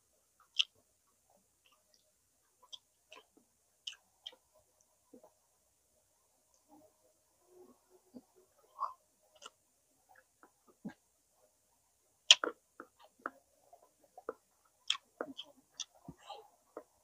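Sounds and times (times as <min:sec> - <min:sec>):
mouth smacks and clicks chewing: 0:00.4 - 0:00.8, 0:01.6 - 0:04.4, 0:08.8 - 0:11.0, 0:12.3 - 0:17.0.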